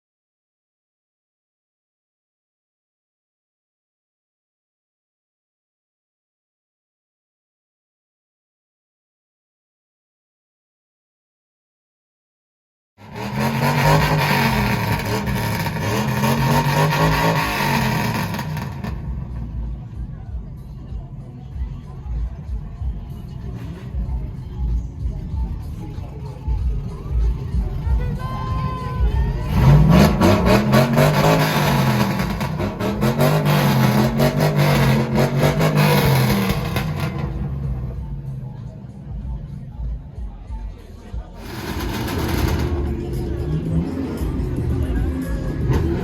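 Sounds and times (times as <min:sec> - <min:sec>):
car engine revving: 0:13.0 - 0:20.6, 0:23.1 - 0:28.0, 0:29.0 - 0:40.2, 0:41.3 - 0:46.0.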